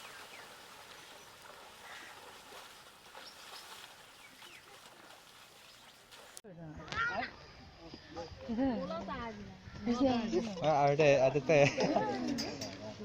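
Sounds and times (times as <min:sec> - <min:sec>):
faint bird chirps: 0:03.2 - 0:04.9.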